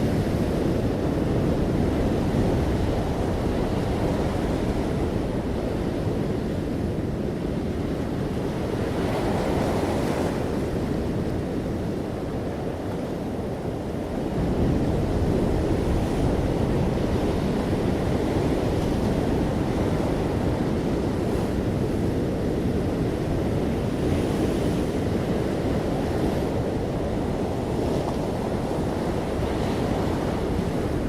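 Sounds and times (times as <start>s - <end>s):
sea waves breaking on shore: 0.0s - 31.0s.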